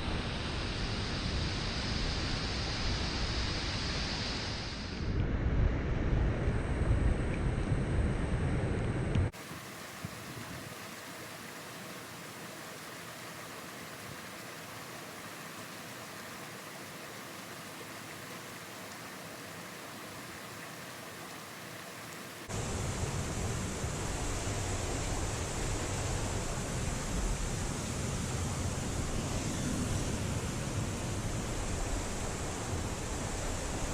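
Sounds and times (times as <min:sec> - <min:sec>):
waterfall hissing: 0:00.0 - 0:05.1, 0:09.4 - 0:33.9.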